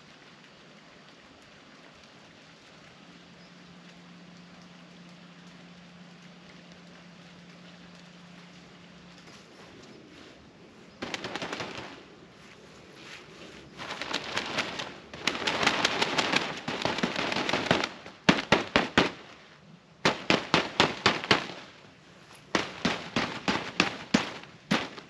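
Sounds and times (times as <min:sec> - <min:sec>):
sharp crackling pops: 0:11.0 - 0:12.1, 0:13.8 - 0:25.0.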